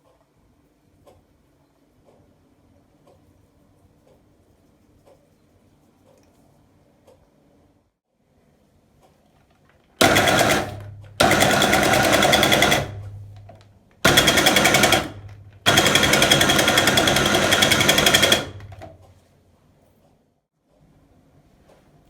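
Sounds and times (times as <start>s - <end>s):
espresso machine buzzing: 10.0s - 12.9s, 14.1s - 15.1s, 15.7s - 18.8s.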